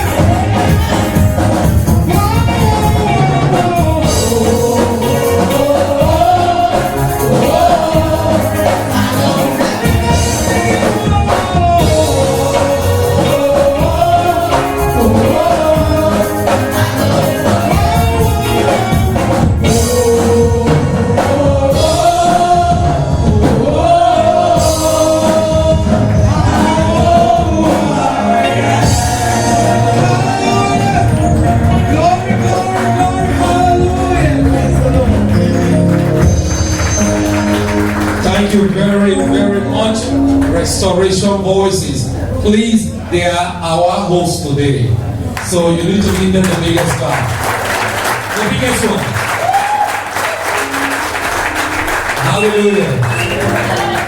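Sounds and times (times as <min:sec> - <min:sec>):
gospel group singing: 0:00.0 - 0:42.2, 0:45.6 - 0:54.0
band accompaniment: 0:00.0 - 0:54.0.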